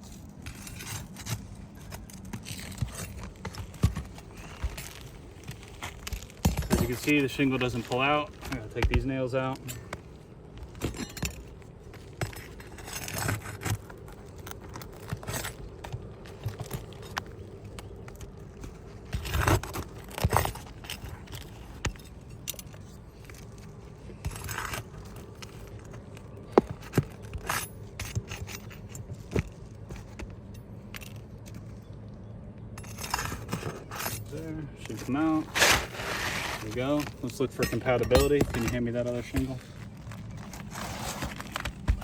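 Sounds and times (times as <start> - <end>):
metal tool scraping: 32.8 - 39.8.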